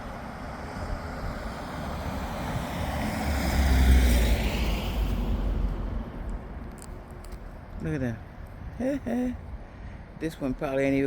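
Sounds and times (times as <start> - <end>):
road vehicle passing by: 0.0 - 7.8.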